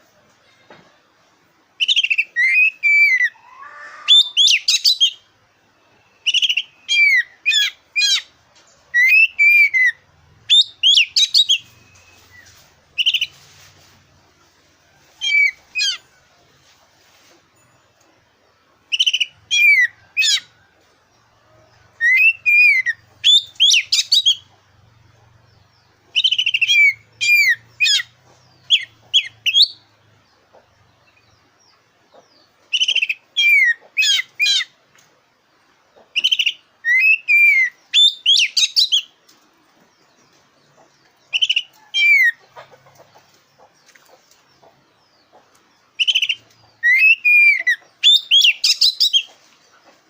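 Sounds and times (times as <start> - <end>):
bird singing whistled phrases: 1.8 - 5.2, 6.0 - 8.2, 9.0 - 13.3, 22.0 - 24.5, 26.2 - 28.0, 36.2 - 39.1, 46.0 - 49.3.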